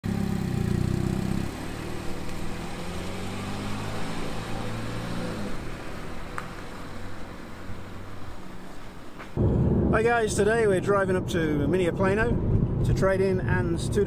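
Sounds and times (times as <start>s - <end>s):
car engine driving away: 0.0s - 9.9s.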